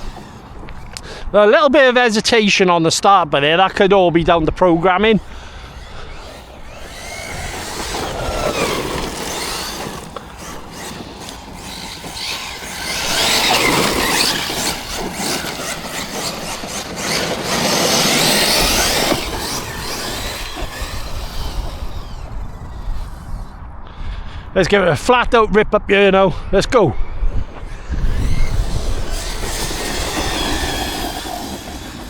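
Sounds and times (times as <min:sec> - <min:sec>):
electric motor whine: 0:00.0 - 0:01.4, 0:04.2 - 0:23.8, 0:27.2 - 0:32.0
tyres rushing on dirt: 0:00.0 - 0:23.6, 0:27.3 - 0:32.0.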